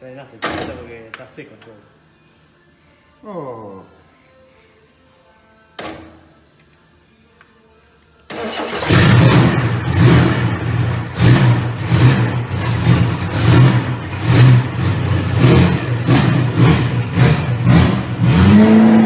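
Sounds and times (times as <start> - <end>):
car engine starting and running unevenly: 8.3 - 19.0.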